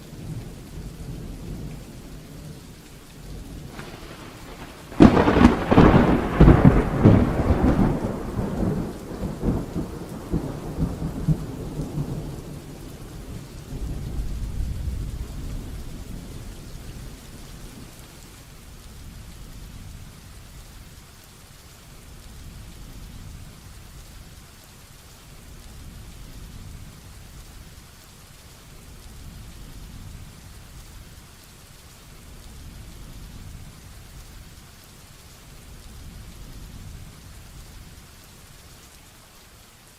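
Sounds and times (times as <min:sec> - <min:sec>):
heavy rain falling: 0:00.0 - 0:39.9
thunderclap rumbling: 0:00.2 - 0:18.3.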